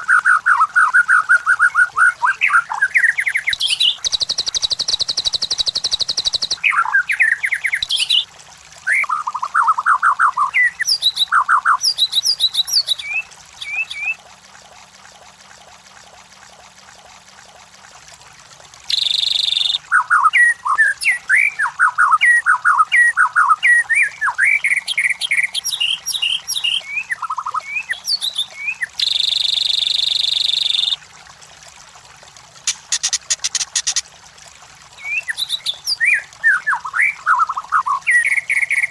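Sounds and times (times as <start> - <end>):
bird singing whistles and trills: 0.1 - 8.2, 8.8 - 14.2, 18.9 - 31.0, 35.0 - 38.9.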